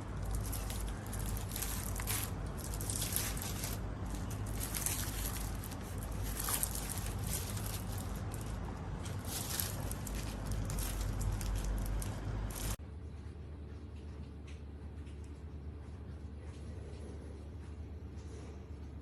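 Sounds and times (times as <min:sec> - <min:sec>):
objects rustling and scraping: 0:00.0 - 0:12.8
steady low hum: 0:00.0 - 0:19.0.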